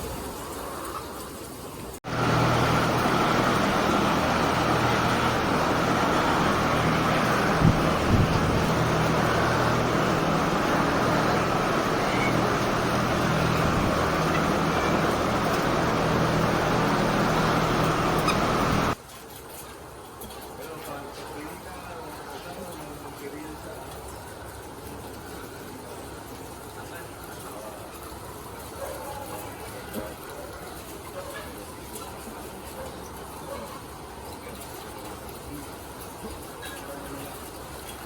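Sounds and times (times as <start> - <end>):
machine running with low hum: 2.0 - 19.0.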